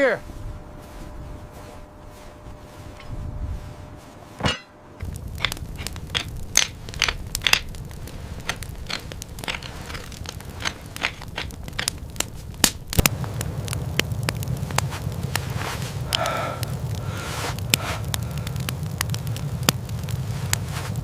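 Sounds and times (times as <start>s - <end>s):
steady low rumble: 0.0s - 21.0s
crunching and cracking snaps: 5.0s - 21.0s.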